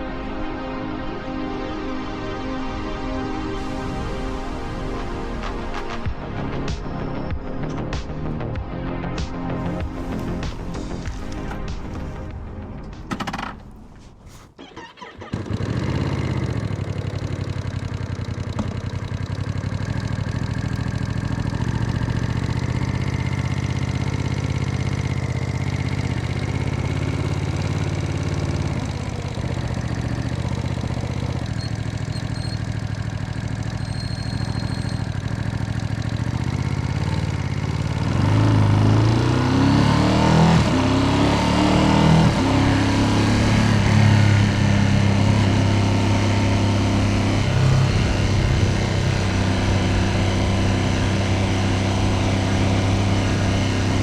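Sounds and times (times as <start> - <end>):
motorcycle engine idling: 9.6 - 39.5, 43.5 - 54.0
motorcycle throttle blips: 10.0 - 41.1.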